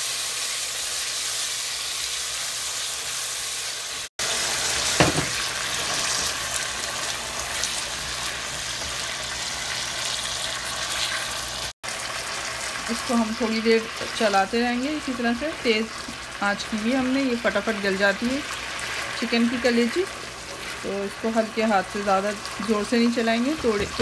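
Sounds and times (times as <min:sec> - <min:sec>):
livers sizzling in hot oil: 0:00.0 - 0:24.0.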